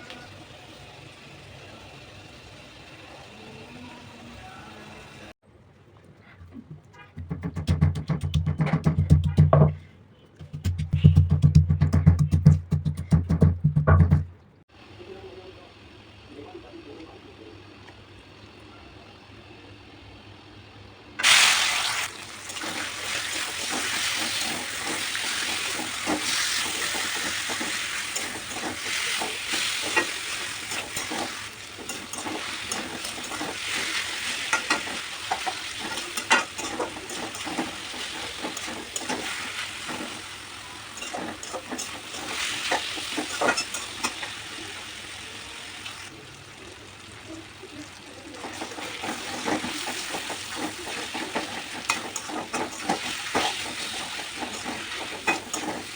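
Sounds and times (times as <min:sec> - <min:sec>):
food sizzling in hot oil: 0:19.2 - 0:55.9
spatula scraping pan: 0:22.5 - 0:44.4, 0:48.4 - 0:55.9.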